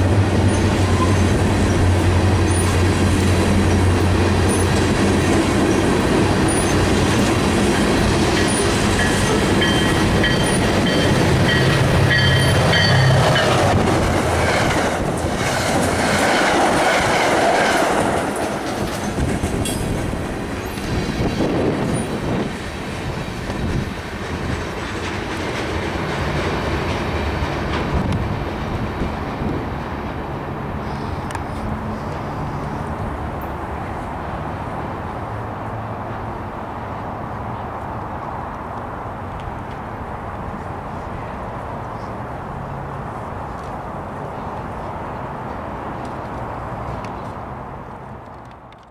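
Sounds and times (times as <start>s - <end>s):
freight train wheel clatter: 0.0s - 33.6s
commuter train passing close: 0.0s - 48.9s
train wheel squeal: 0.4s - 1.8s, 2.4s - 3.3s, 4.4s - 4.8s, 6.4s - 6.9s, 8.3s - 13.8s, 30.8s - 32.8s.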